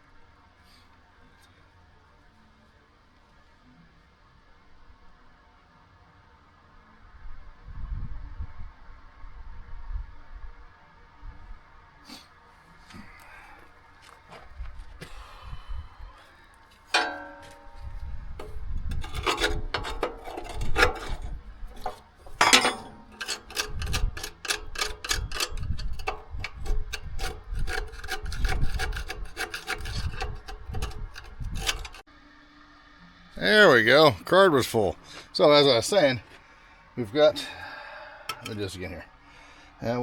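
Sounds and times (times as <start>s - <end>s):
hand tool scraping metal: 16.6s - 32.1s, 38.3s - 38.7s
metal clink: 16.8s - 32.0s, 38.3s - 38.6s.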